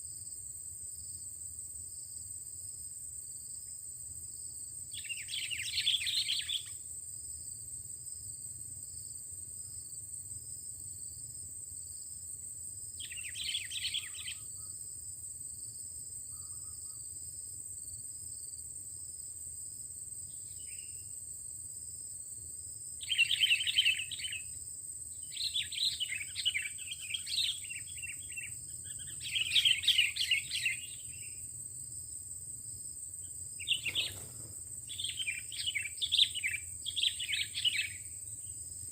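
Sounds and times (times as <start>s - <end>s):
insect trill: 0.0s - 38.9s
bird chattering song: 5.0s - 6.7s, 13.0s - 14.5s, 23.0s - 24.5s, 25.3s - 31.3s, 33.6s - 38.1s.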